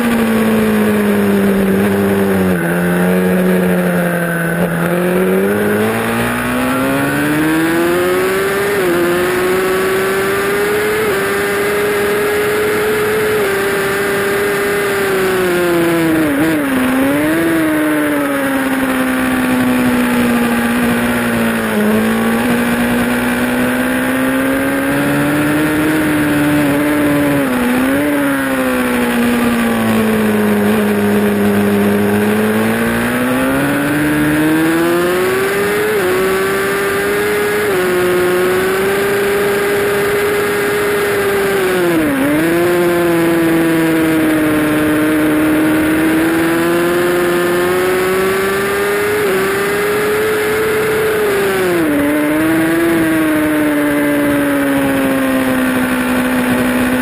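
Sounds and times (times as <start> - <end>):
motorcycle engine at high revs: 0.0 - 57.0.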